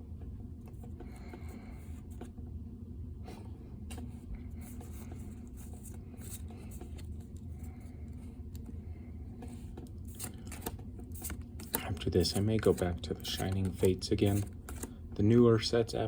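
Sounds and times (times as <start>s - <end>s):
steady low hum: 0.0s - 16.0s
trading cards rustling: 3.8s - 15.8s.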